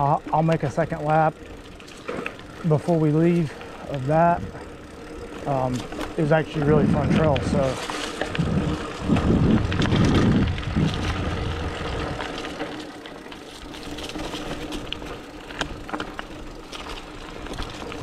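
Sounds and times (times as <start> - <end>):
bike clicks and rattles: 0.0 - 18.0
bike tyre noise on dirt: 0.0 - 18.0
wind buffeting microphone: 6.6 - 12.4.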